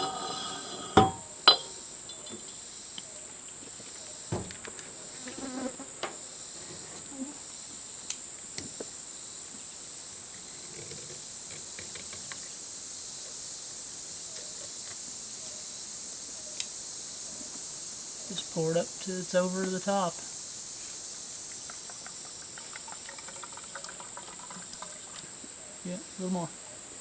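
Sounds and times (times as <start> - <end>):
sharp metal knocks: 0.9 - 2.6.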